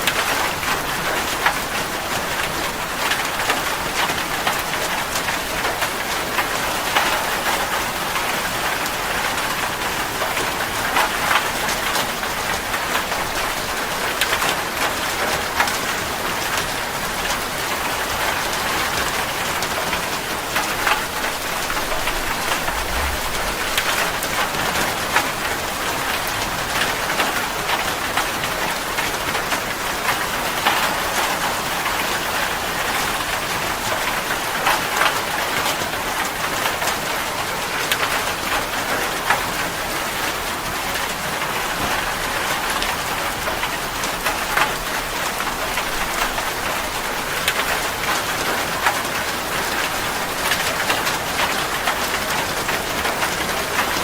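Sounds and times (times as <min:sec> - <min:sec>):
raindrops pattering: 0:00.0 - 0:54.0
heavy rain hissing: 0:19.0 - 0:27.1.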